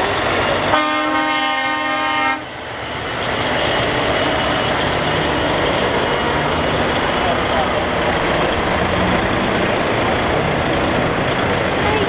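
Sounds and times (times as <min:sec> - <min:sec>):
trucks passing: 0:00.0 - 0:12.0
truck air horn blasting: 0:00.7 - 0:02.5.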